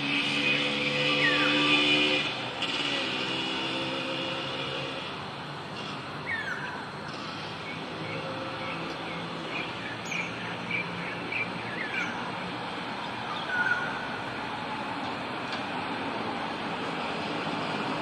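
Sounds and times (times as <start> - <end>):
birds calling and chirping: 0.2 - 2.8, 6.2 - 12.4, 13.0 - 14.2.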